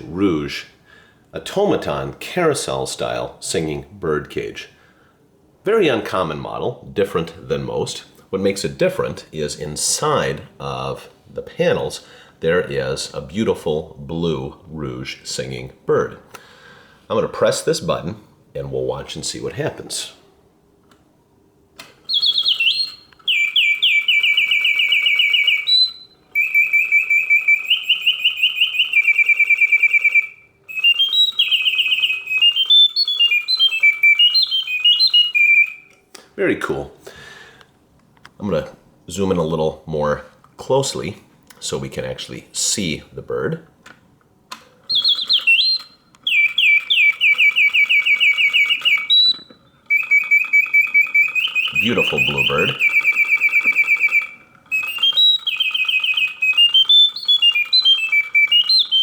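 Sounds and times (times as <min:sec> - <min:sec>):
mechanical bird whistle trilling: 0:22.0 - 0:35.9, 0:44.8 - 0:59.0.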